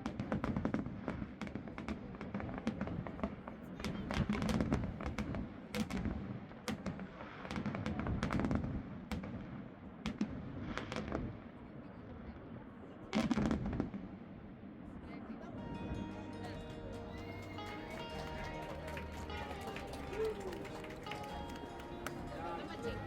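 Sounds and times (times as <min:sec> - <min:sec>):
fireworks pops and crackles: 0:00.0 - 0:11.7, 0:13.1 - 0:14.4
low fireworks rumbles: 0:00.0 - 0:23.0.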